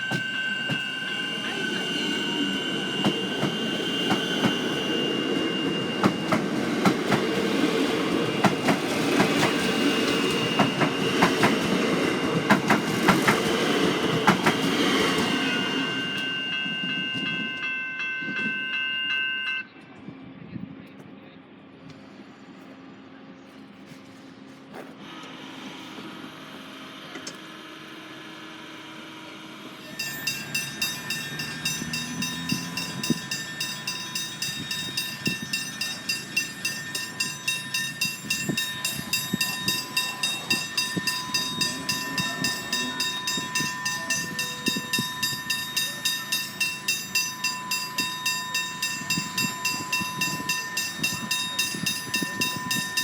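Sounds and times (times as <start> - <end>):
train wheels rumbling over rails: 0.0 - 19.2, 29.7 - 53.0
level crossing bell ringing: 0.0 - 19.8, 29.9 - 53.0.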